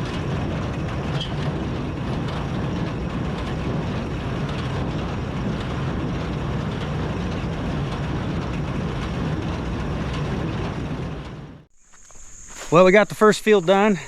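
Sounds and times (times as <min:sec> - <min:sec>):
hay baler working: 0:00.0 - 0:11.6
tractor engine running: 0:00.0 - 0:11.8.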